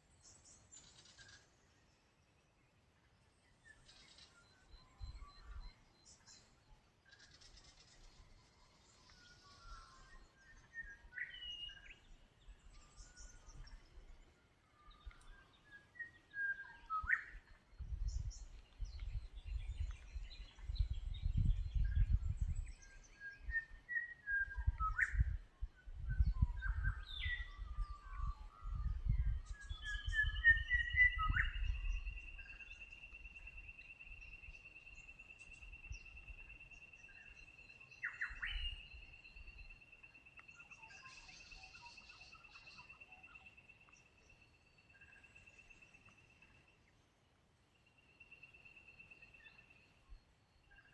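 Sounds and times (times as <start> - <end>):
birds whistling and singing: 0.1 - 2.7, 3.3 - 47.0, 47.8 - 50.9
wind rumbling on microphone: 4.0 - 6.4, 16.7 - 39.9.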